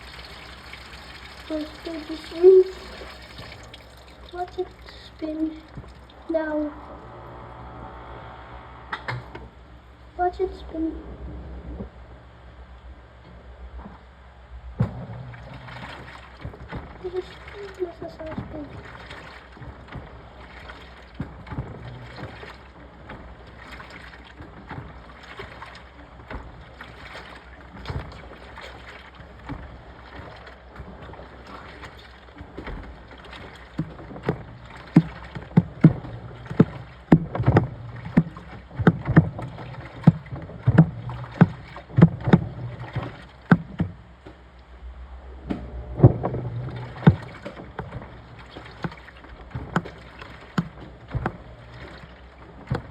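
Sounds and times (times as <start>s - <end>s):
water sloshing in drum: 0.0s - 7.0s, 9.0s - 52.9s
washing machine running: 0.0s - 52.9s
repeated thumps: 14.8s - 15.2s, 32.4s - 44.4s, 45.4s - 52.9s.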